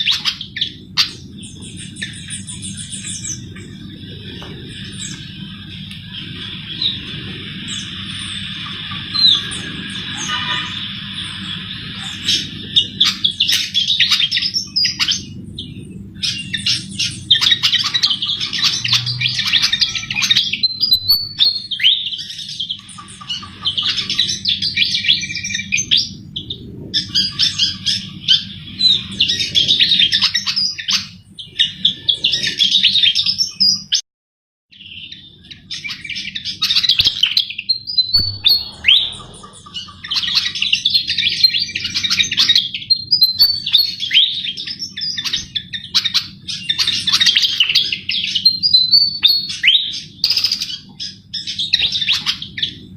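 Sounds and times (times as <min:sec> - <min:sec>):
steady low hum: 0:00.0 - 0:30.2, 0:37.1 - 0:42.8
bird twittering song: 0:00.0 - 0:34.0, 0:34.8 - 0:52.9.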